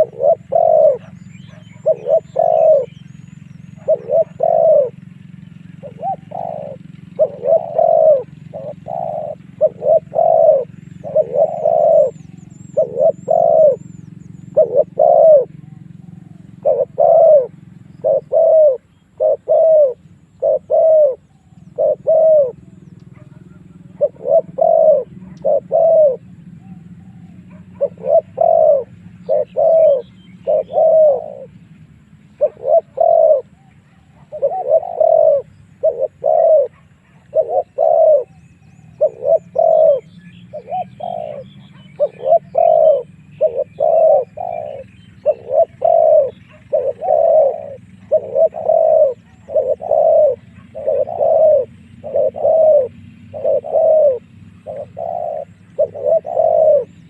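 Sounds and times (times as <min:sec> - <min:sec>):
dove cooing: 0:00.0 - 0:57.0
small birds chirping: 0:00.0 - 0:57.0.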